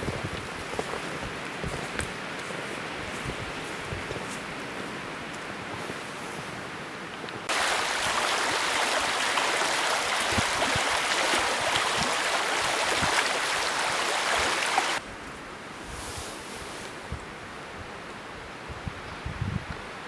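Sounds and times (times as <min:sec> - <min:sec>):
faint wind: 0:00.0 - 0:20.0
river water rushing: 0:07.4 - 0:15.0.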